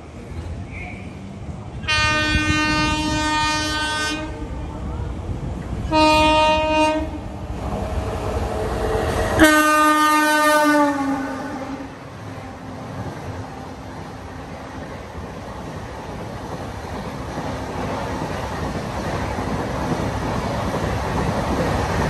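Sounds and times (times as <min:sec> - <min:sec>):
train rumbling past: 0:00.0 - 0:22.0
train horn blasts: 0:01.8 - 0:04.6, 0:05.8 - 0:07.2, 0:09.3 - 0:12.7.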